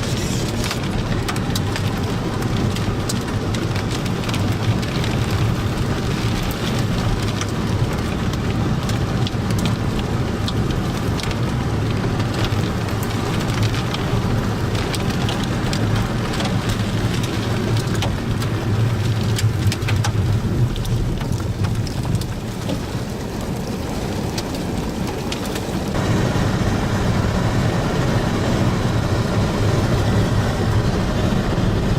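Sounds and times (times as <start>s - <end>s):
heavy rain: 0.0s - 31.9s
low rumble: 25.8s - 31.9s.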